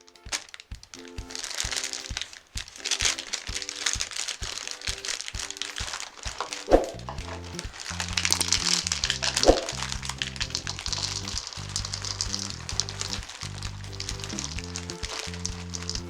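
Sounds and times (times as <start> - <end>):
background music with beat: 0.0 - 16.0
dry cereal crunching: 0.0 - 16.0.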